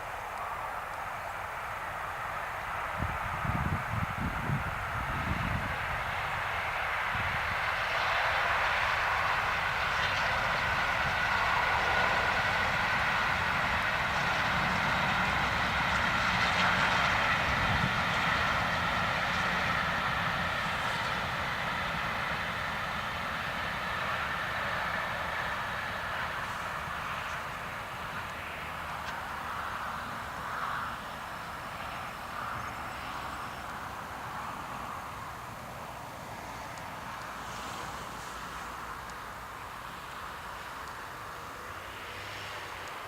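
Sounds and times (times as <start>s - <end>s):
steam train passing: 0.0s - 43.0s
wind buffeting microphone: 2.8s - 8.0s, 9.5s - 22.6s.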